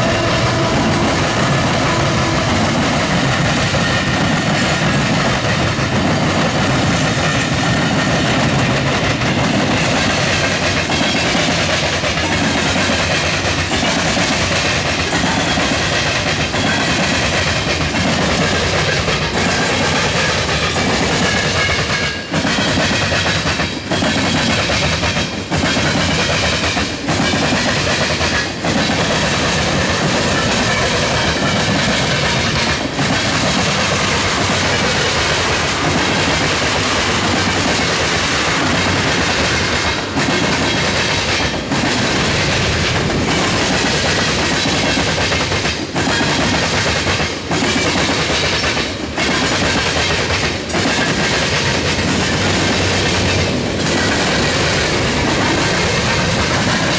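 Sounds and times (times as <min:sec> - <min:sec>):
freight train wheels rumbling: 0:00.0 - 0:56.9.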